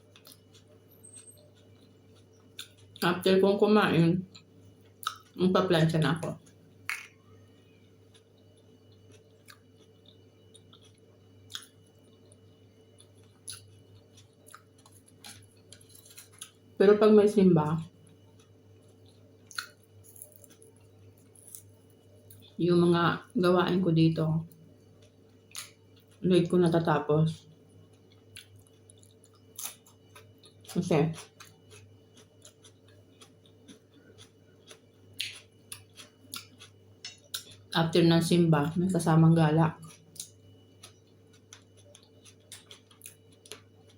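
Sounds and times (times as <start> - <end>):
chewing: 0.0 - 3.0, 4.3 - 5.4, 6.2 - 16.6, 17.8 - 22.6, 27.4 - 37.7, 39.7 - 43.9
steady low hum: 0.0 - 43.9.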